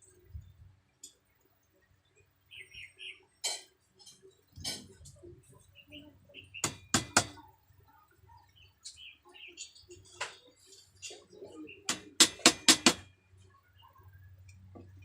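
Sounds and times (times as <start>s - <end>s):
clicks and knocks of hand work: 9.7s - 13.1s.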